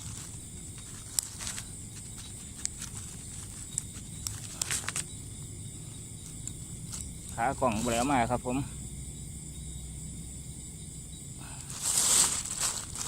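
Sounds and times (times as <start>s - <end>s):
rustling through vegetation: 0.0s - 8.5s, 11.4s - 13.0s
high-pitched insect drone: 0.0s - 13.0s.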